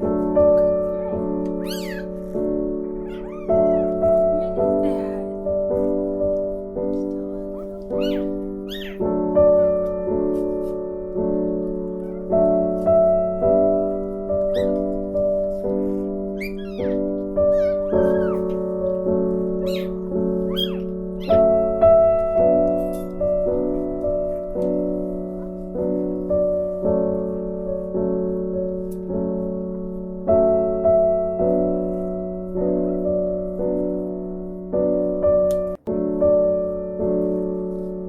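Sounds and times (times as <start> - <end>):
soft piano chords: 0.0 - 38.0
short high squeaks: 1.6 - 2.2, 3.0 - 4.0, 7.6 - 9.0, 16.4 - 18.5, 19.6 - 21.4.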